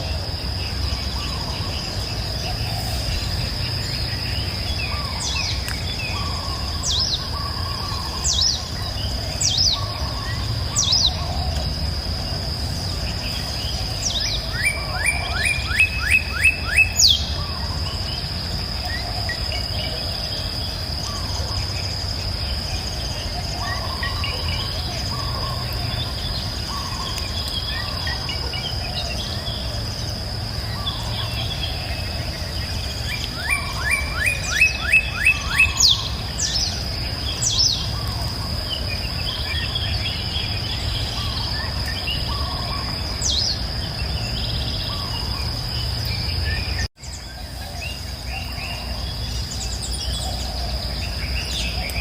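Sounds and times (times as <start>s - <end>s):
birds singing and calling: 0.0s - 52.0s.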